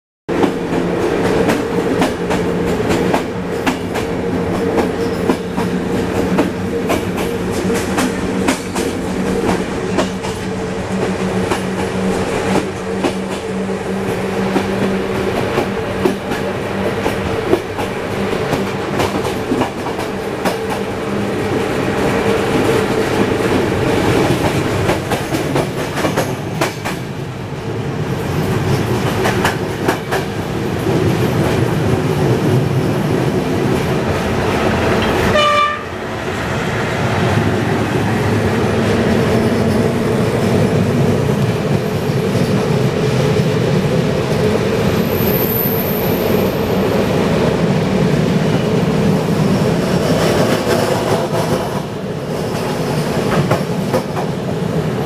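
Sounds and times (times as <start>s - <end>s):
clickety-clack of rail joints: 0.3s - 27.6s, 28.2s - 35.9s, 37.2s - 46.8s, 48.4s - 55.0s
wheel and rail rumble: 0.3s - 55.0s
rushing air: 27.2s - 53.8s.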